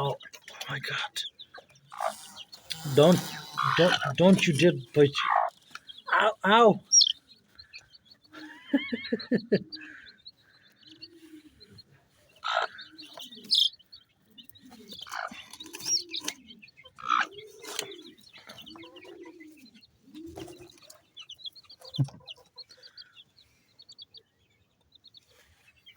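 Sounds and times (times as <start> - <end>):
hen giving low calls: 0.0 - 7.2, 12.4 - 13.7, 14.7 - 20.8
chicks peeping: 0.0 - 25.9
sharp squawks: 1.9 - 4.5.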